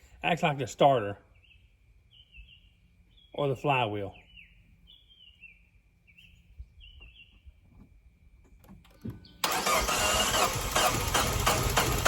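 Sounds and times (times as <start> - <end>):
birds chirping faintly: 0.0 - 9.5
car starter cranking: 8.6 - 12.0
car engine starting: 9.4 - 12.0.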